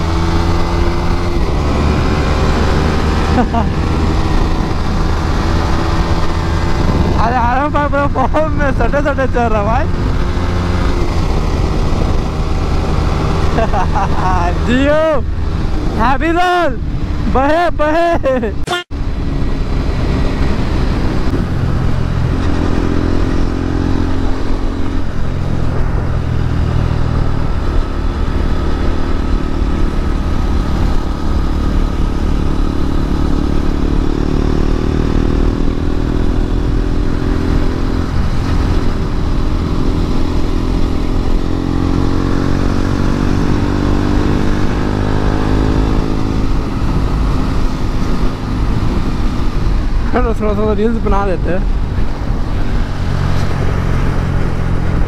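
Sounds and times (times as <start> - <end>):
motorcycle engine running hard: 0.0 - 55.0.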